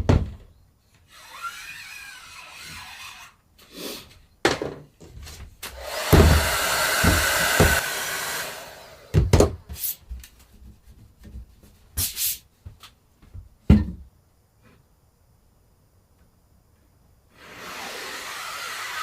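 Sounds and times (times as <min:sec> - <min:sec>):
hair dryer blower running: 0:05.6 - 0:09.3, 0:17.4 - 0:19.0.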